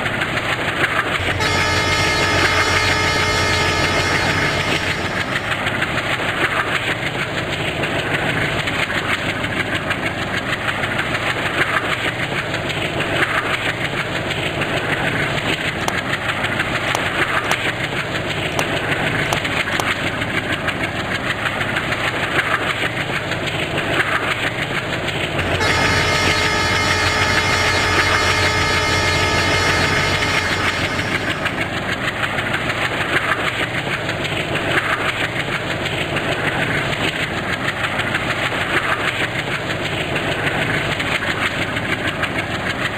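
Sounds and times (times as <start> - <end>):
train passing: 0.0 - 11.6, 24.4 - 33.8.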